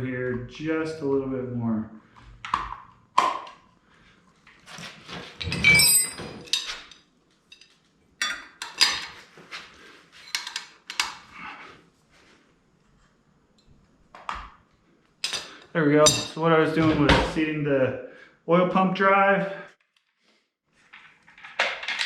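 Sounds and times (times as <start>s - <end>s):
metal clinks and clanks: 5.4s - 9.0s.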